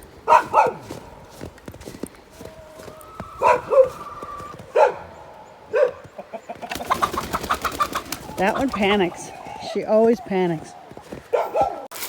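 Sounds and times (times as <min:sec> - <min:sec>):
dog barking: 0:00.2 - 0:01.4, 0:02.8 - 0:06.2, 0:09.5 - 0:11.9.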